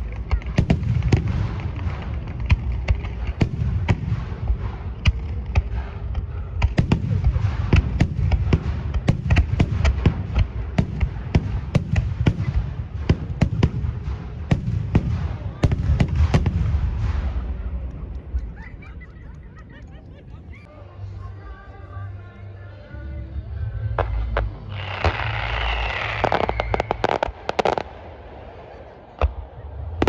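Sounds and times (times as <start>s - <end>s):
fireworks bangs: 0.0s - 18.5s
low booming rumble: 0.0s - 18.6s.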